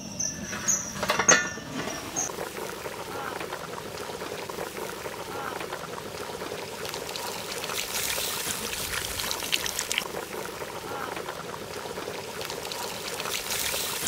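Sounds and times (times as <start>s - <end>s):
curry bubbling at a boil: 1.7s - 14.0s
pods splashing into liquid: 3.4s - 14.0s.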